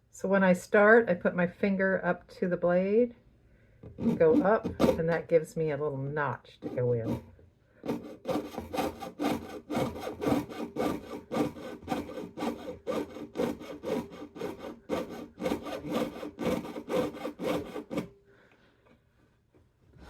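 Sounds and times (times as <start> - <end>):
saw blade cutting metal sheet: 4.0 - 5.2, 6.6 - 7.2, 7.9 - 18.1.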